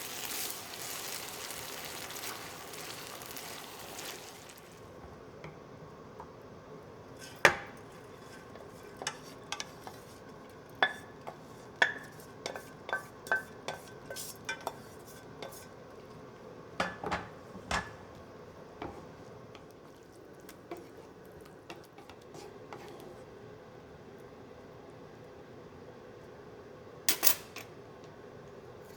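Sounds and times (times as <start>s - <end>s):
utensils clinking on dishes: 27.1s - 27.7s.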